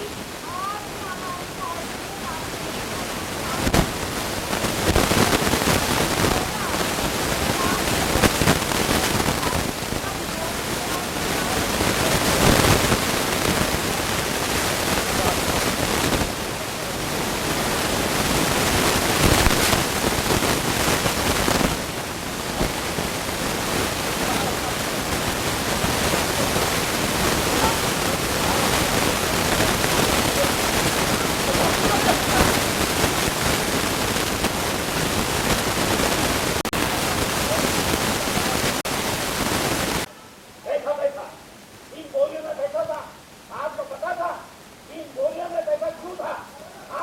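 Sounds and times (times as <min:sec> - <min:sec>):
loud rushing noise: 0:11.7 - 0:39.2
indistinct voices: 0:13.9 - 0:33.9.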